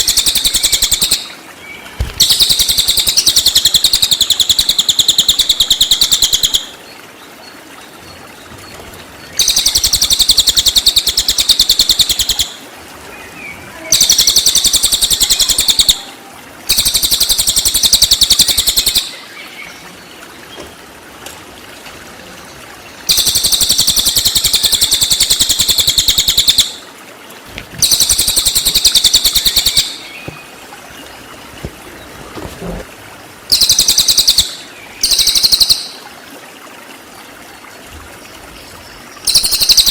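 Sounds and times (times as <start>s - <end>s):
songbird high-pitched trills: 33.5s - 36.0s.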